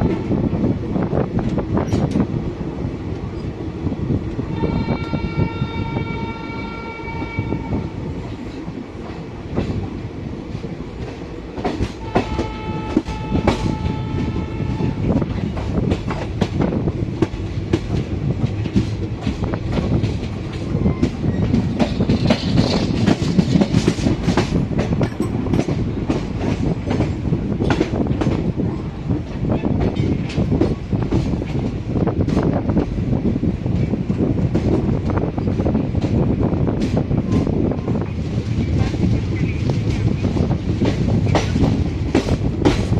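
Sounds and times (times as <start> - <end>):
train rumbling: 0.0 - 42.9
train horn: 4.5 - 8.1, 12.0 - 15.2.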